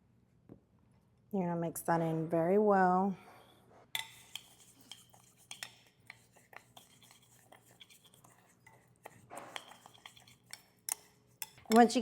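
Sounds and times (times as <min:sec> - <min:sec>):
utensil stirring in a bowl: 0:03.9 - 0:12.0.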